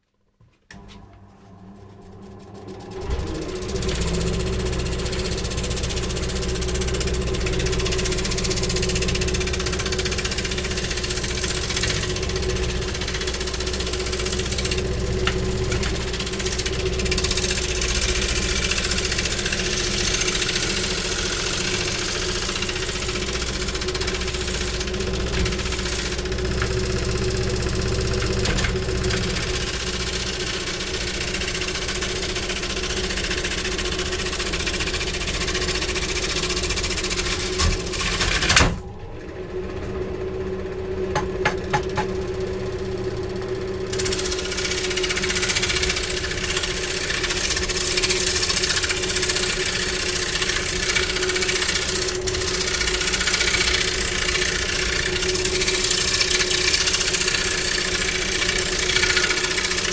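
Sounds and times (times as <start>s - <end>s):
machine motor humming: 0.7s - 59.9s.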